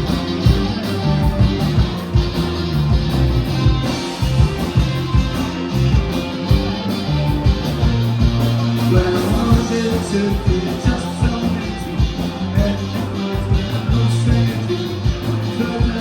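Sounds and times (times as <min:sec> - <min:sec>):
live rock band playing: 0:00.0 - 0:16.0
steady drum beat: 0:00.0 - 0:16.0
strummed guitars: 0:00.0 - 0:16.0.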